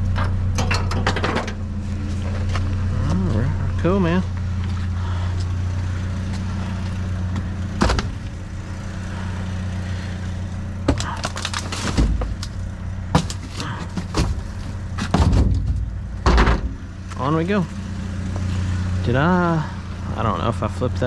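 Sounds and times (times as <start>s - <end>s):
vehicle engine idling: 0.0s - 21.0s
scrap metal knocks and clatter: 0.2s - 2.6s, 13.1s - 16.8s.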